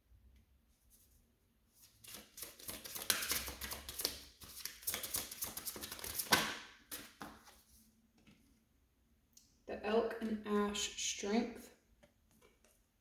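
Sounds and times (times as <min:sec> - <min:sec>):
cards being shuffled: 0:01.9 - 0:07.6.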